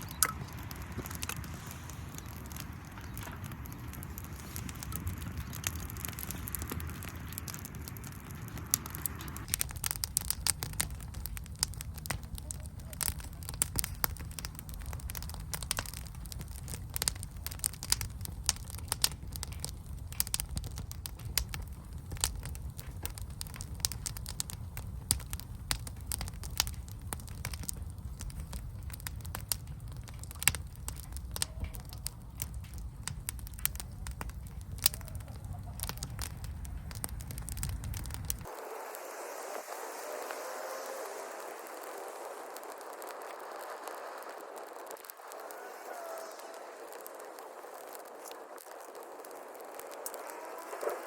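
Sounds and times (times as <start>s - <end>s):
wood fire crackling and popping: 0.0s - 51.0s.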